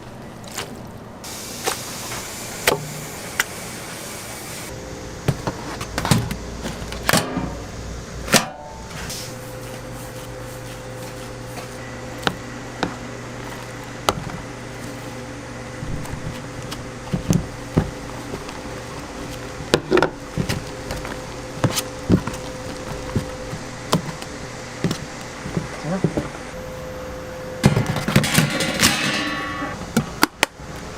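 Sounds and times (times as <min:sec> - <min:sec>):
steady machine hum: 0:00.9 - 0:30.9
utensils knocking and clicking: 0:27.6 - 0:29.8.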